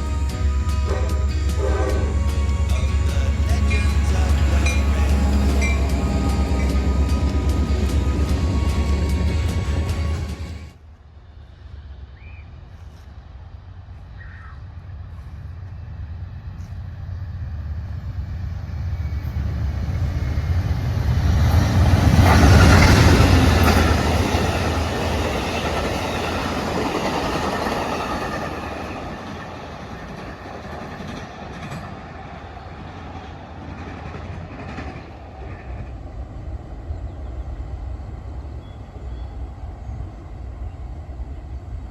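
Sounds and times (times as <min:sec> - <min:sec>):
passenger cars rumbling past: 0:00.0 - 0:10.8
diesel locomotive passing: 0:00.0 - 0:41.9.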